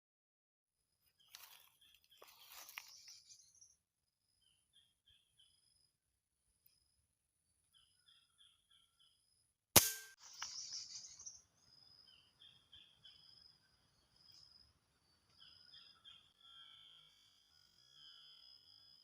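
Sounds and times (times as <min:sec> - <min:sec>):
small birds chirping: 0:01.0 - 0:06.0, 0:06.6 - 0:09.4, 0:10.2 - 0:19.0
air-rifle shot: 0:09.8 - 0:10.2.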